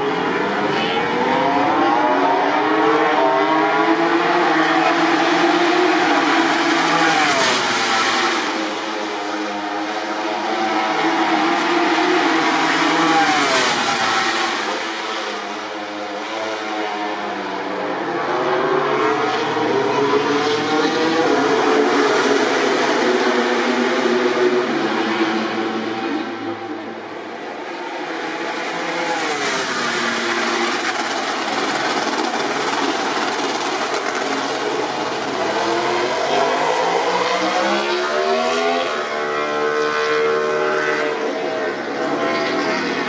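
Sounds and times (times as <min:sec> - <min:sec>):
racing motorcycles at high revs: 0:00.7 - 0:16.3, 0:33.9 - 0:43.0.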